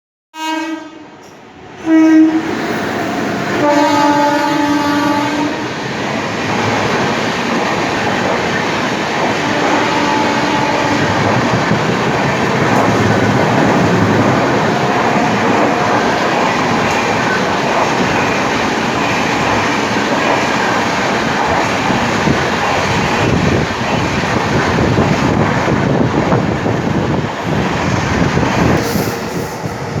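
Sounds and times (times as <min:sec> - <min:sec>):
locomotive horn blasts: 0:00.4 - 0:01.2, 0:01.8 - 0:02.5, 0:03.6 - 0:05.6, 0:09.5 - 0:11.2
train coaches rushing and rattling: 0:01.2 - 0:30.0.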